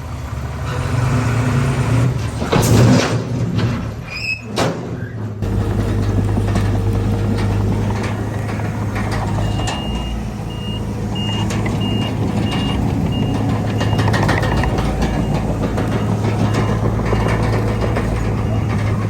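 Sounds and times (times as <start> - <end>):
diesel engine running: 5.3 - 19.0
reverse alarm beeping: 9.2 - 19.0.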